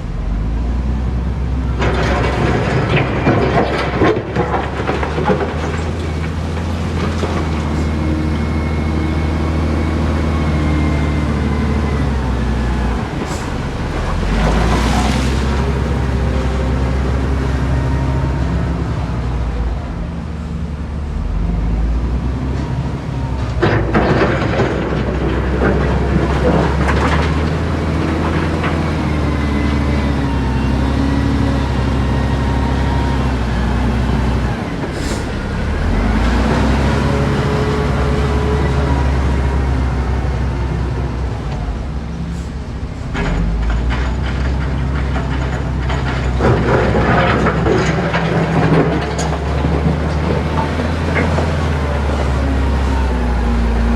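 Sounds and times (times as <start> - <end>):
diesel machinery engine: 0.0 - 53.9
metallic clanking and rattling: 42.4 - 52.4.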